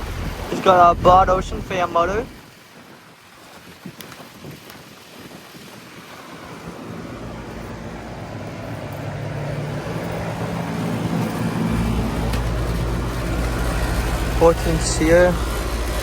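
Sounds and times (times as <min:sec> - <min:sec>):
deeper low hum: 0:00.0 - 0:02.4, 0:06.8 - 0:16.0
heat pump whooshing hum: 0:00.0 - 0:02.5, 0:05.9 - 0:16.0.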